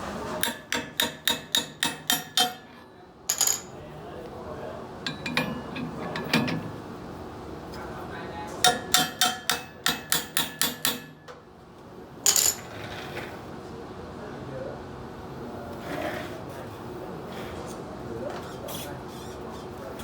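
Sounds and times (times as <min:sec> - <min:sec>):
hammer striking metal: 0:00.4 - 0:03.7, 0:05.1 - 0:06.6, 0:08.6 - 0:11.3.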